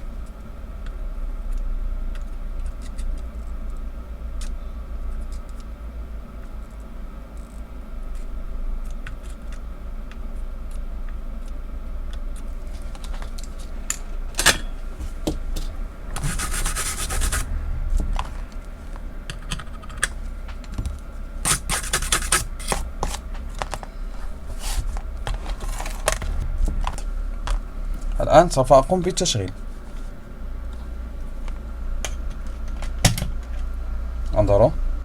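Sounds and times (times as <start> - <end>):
low mains hum: 0.0 - 35.0
rubbing and scratching on circuit board: 15.1 - 17.6, 20.8 - 26.5.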